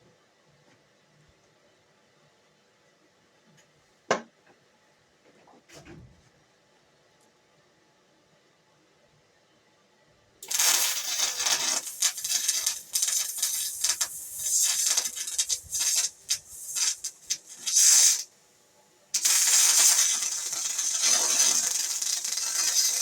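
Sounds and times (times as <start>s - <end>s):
arc welding crackling: 10.4s - 18.3s, 19.2s - 23.0s.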